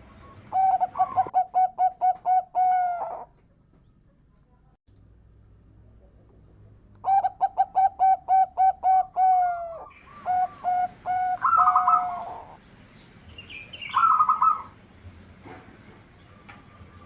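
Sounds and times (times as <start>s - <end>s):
dove cooing: 0.0s - 3.4s, 7.0s - 12.6s, 13.8s - 14.8s
dove trilled phrases: 0.0s - 4.1s, 7.0s - 14.8s.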